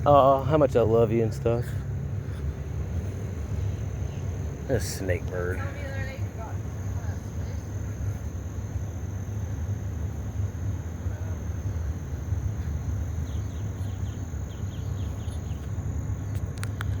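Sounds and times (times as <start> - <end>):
small bird chirping: 12.6 - 17.0.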